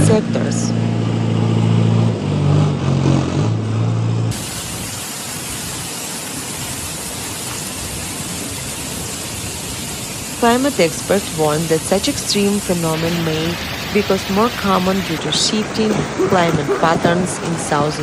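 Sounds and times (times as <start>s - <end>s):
vehicle engine hum: 0.0s - 4.9s, 10.1s - 18.0s
heavy downpour hiss: 4.3s - 18.0s.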